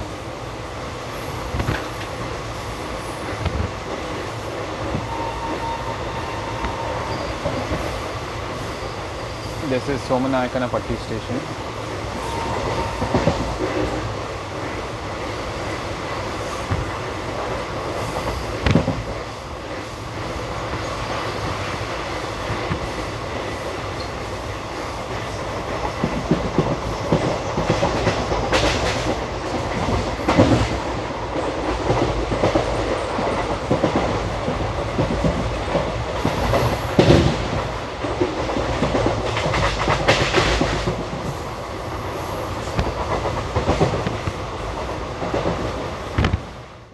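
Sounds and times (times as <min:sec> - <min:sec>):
train wheels clattering over rails: 0:00.0 - 0:46.9.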